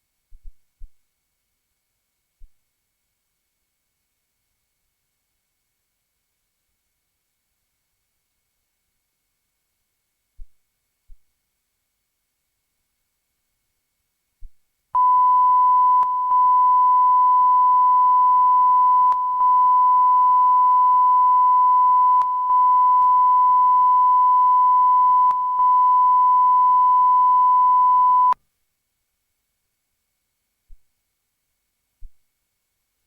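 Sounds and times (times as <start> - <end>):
steady pure test tone: 15.0 - 28.4.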